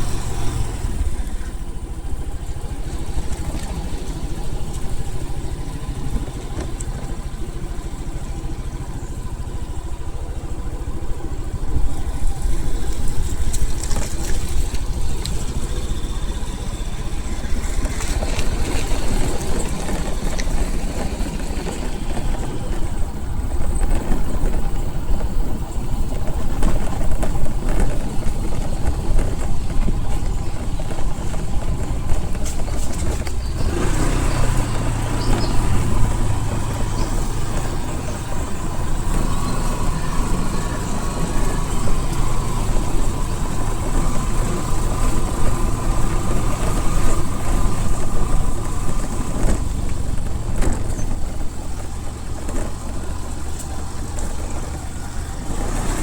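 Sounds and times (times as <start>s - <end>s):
vehicle engine and road noise: 0.0s - 56.0s.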